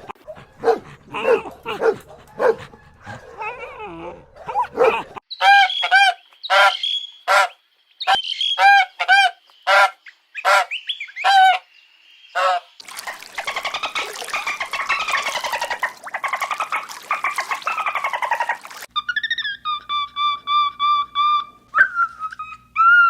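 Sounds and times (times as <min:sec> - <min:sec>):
rapidly pulsing animal call: 0:12.4 - 0:21.5.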